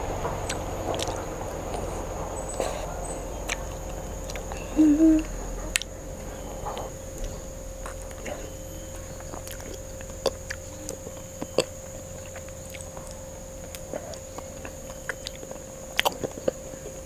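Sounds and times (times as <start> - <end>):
steady thin hum and whine: 0.0 - 17.0
wet lip and tongue clicks: 9.2 - 16.6.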